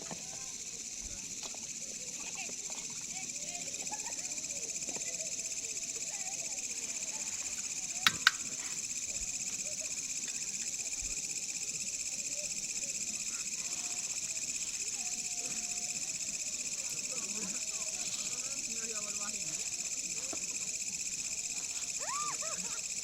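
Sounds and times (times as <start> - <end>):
crickets and night insects chirping: 0.0 - 23.0
sharp clicks: 8.0 - 8.6.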